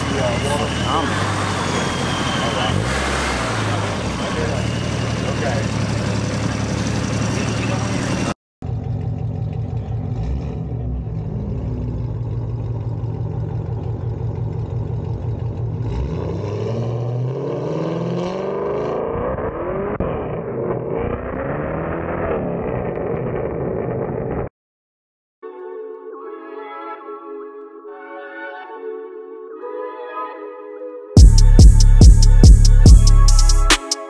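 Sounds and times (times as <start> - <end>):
car engine accelerating: 0.0 - 24.5.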